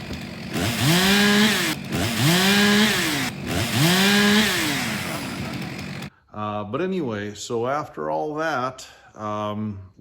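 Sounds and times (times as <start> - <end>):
chainsaw engine revving: 0.0 - 6.1.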